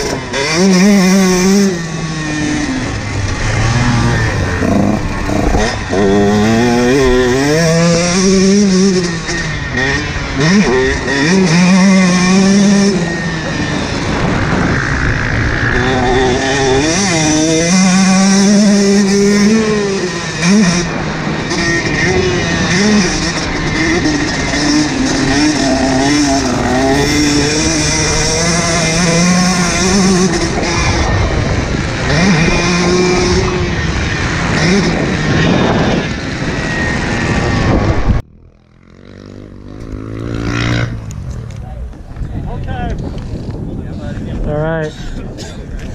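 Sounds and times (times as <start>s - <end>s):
motocross bike engine revving: 0.0s - 42.1s
wind noise on microphone: 0.1s - 38.3s, 39.8s - 45.9s.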